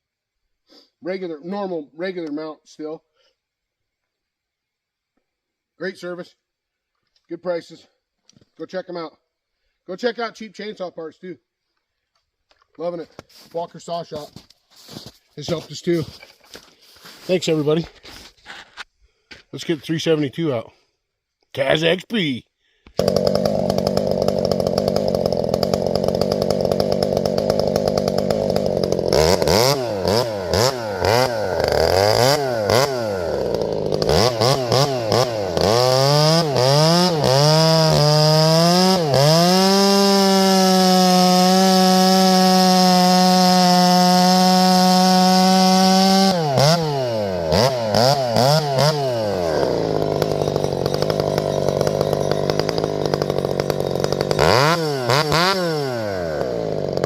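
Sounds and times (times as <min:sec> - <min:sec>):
chainsaw revving: 0:23.0 - 0:57.0.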